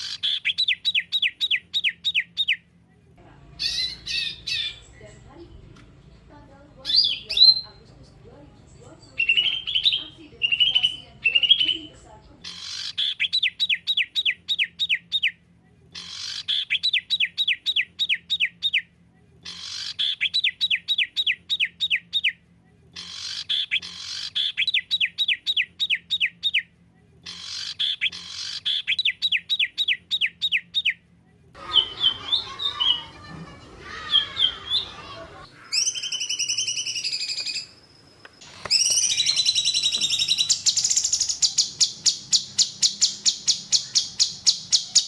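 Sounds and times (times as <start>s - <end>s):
bird chirping: 0.0s - 2.6s, 3.2s - 15.4s, 16.0s - 18.8s, 27.3s - 31.0s, 31.6s - 45.0s.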